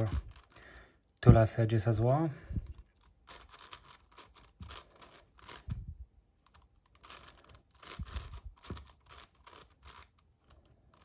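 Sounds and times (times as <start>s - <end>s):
plastic puzzle cube clicking: 2.6s - 5.8s, 6.4s - 11.0s.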